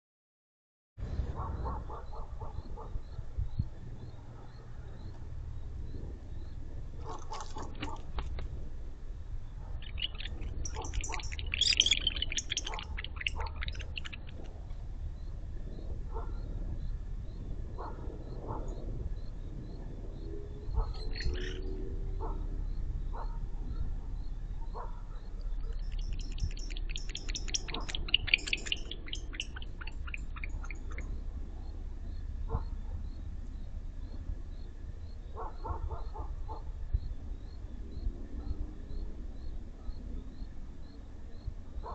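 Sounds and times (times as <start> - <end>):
low rumble: 7.8 - 40.9
owl rattling call: 9.8 - 14.8, 20.8 - 22.3, 25.4 - 31.2.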